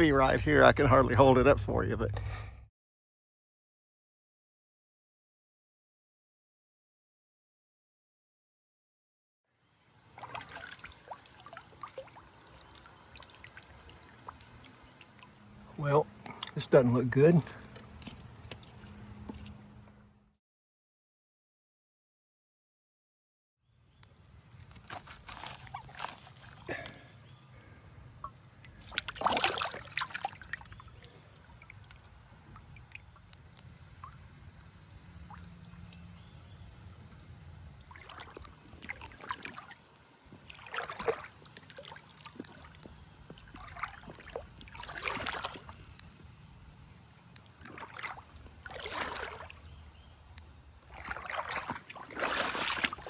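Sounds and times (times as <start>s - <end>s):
water trickling and gurgling: 9.6s - 19.6s, 24.5s - 53.0s
paddle splashing in water: 10.1s - 15.6s, 28.8s - 33.0s, 37.8s - 46.4s, 47.5s - 50.1s, 50.8s - 53.0s.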